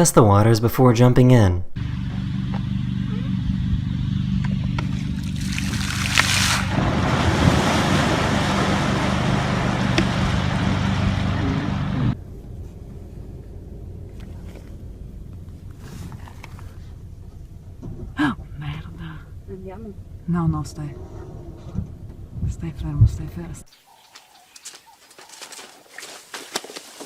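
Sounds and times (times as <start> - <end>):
low engine hum: 1.8 - 23.7
rushing wind and water: 5.3 - 12.2.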